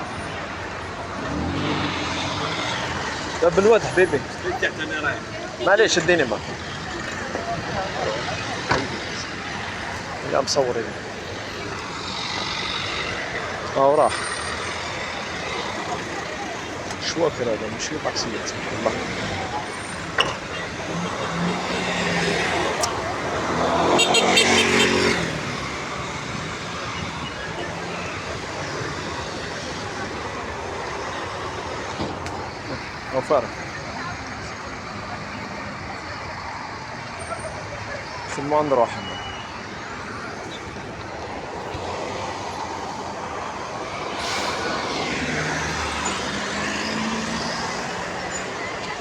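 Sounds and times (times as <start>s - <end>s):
street traffic passing: 0.0s - 49.0s
sharp rushing sound: 44.0s - 45.6s.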